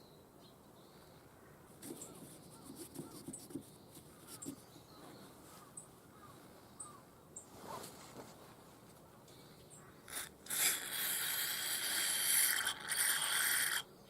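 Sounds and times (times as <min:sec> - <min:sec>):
faint bird calls: 0:00.8 - 0:07.8.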